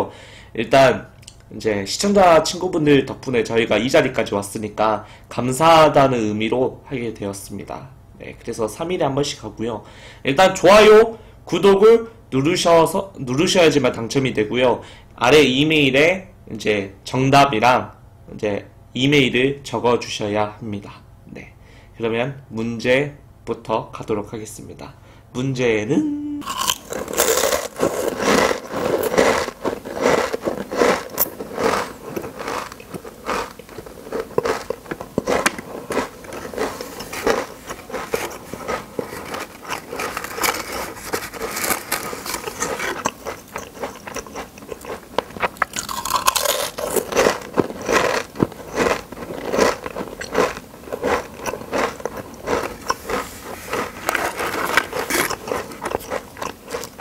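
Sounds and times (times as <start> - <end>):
person crunching crisp food: 26.4 - 57.0.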